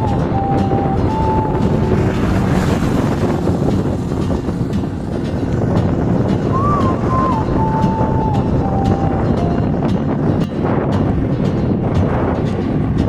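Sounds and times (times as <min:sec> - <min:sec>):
thin high tone stepping in pitch: 0:00.0 - 0:02.5, 0:06.5 - 0:10.1
wind buffeting microphone: 0:00.0 - 0:13.0.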